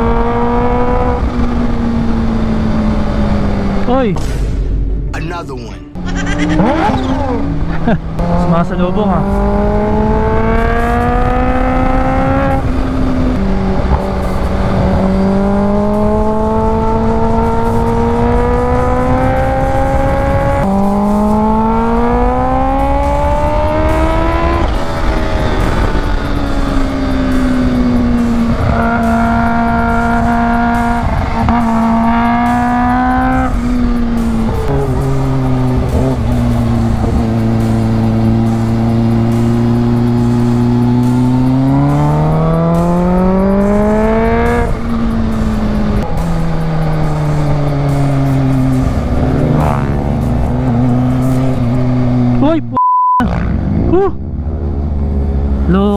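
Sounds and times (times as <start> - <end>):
motorcycle engine accelerating: 0.0 - 5.1, 6.0 - 55.9.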